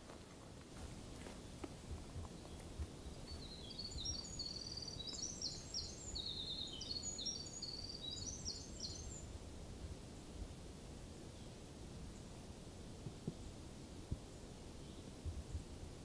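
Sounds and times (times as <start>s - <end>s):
small songbird singing: 2.3s - 9.4s, 14.3s - 15.6s.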